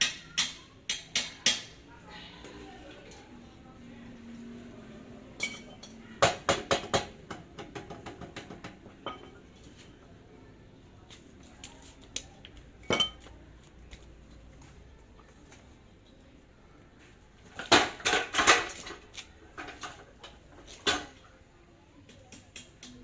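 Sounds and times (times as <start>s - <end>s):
metal tools clinking together: 5.4s - 6.0s.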